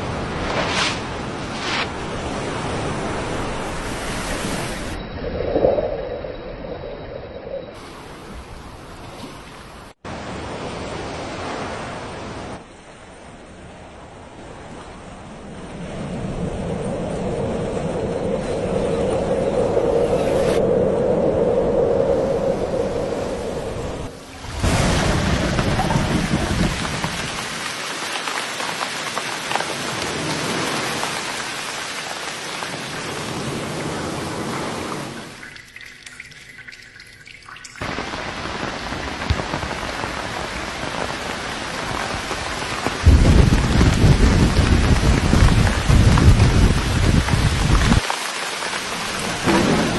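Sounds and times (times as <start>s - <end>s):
water rushing: 0.0s - 12.8s, 21.4s - 49.9s
heavy rain drops clicking: 24.7s - 34.8s, 37.6s - 49.9s.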